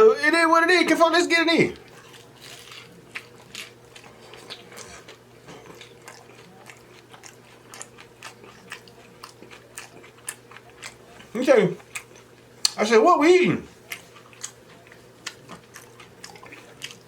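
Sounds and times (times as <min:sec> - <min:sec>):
person chewing crunchy food: 0:01.8 - 0:12.8, 0:13.7 - 0:17.0.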